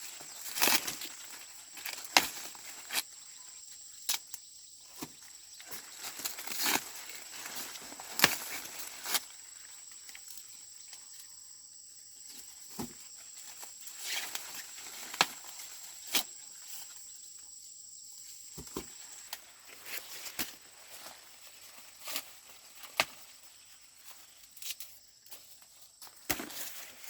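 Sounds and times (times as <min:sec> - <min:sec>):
dry corn plants rustling: 0:00.0 - 0:11.3, 0:12.2 - 0:17.1, 0:18.2 - 0:27.0
insect drone: 0:00.0 - 0:27.0
corn stalks snapping: 0:00.2 - 0:03.0, 0:05.0 - 0:09.3, 0:14.0 - 0:16.3, 0:19.2 - 0:21.2, 0:22.0 - 0:23.3, 0:26.1 - 0:27.0.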